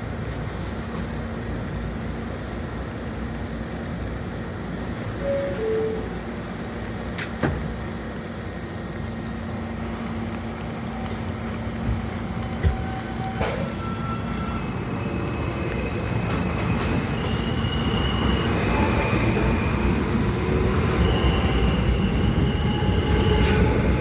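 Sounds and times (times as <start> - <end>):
subway train hum and rumble: 0.0 - 24.0
two-tone door chime: 5.2 - 6.2.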